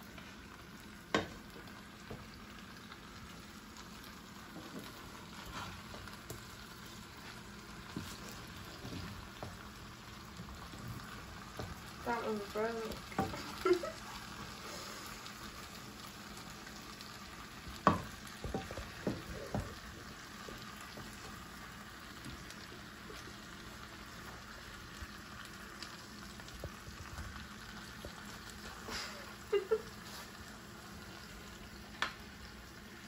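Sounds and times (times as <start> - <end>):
meat sizzling in a frying pan: 0.0 - 33.0
wooden spatula knocking a pan: 1.1 - 1.4, 13.1 - 13.5, 17.8 - 19.8.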